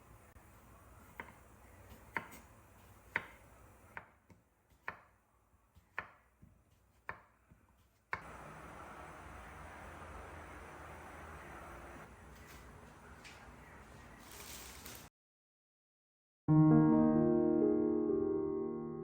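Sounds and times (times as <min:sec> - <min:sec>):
knife chopping on cutting board: 0:01.2 - 0:02.5, 0:03.1 - 0:08.2
steady hiss: 0:08.2 - 0:12.1.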